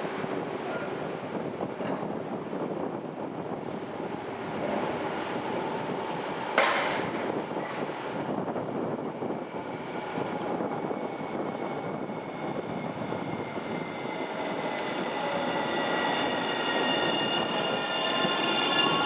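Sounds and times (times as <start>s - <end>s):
electric train running on rails: 0.0s - 19.0s
wheel squeal: 11.4s - 19.0s.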